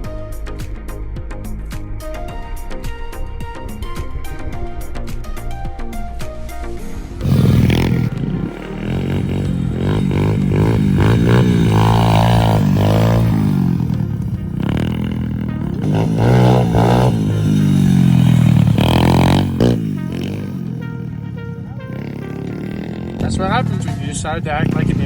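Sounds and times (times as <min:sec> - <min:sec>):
motorbike engine revving: 0:07.2 - 0:25.0.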